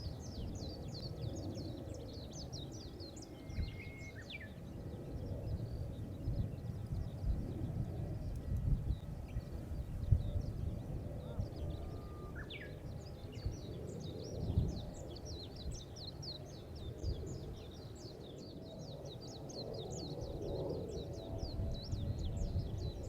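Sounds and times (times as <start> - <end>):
wind buffeting microphone: 0.0 - 23.0
rising bird whistle: 3.2 - 4.3, 11.8 - 12.8.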